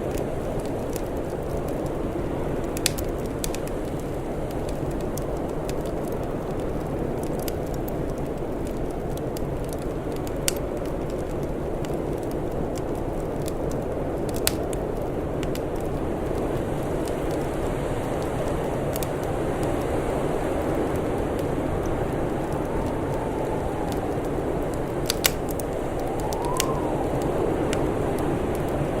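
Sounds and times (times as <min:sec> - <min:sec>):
sharp fire pops: 0:00.0 - 0:29.0
wood fire crackling: 0:00.0 - 0:29.0
low rushing noise: 0:21.6 - 0:29.0.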